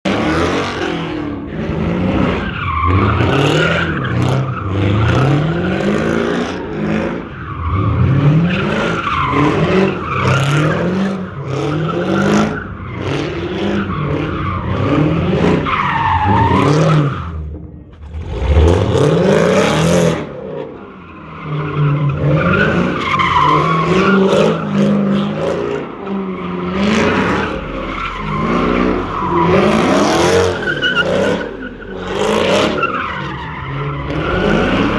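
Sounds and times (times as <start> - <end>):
car engines revving: 0.1 - 34.9.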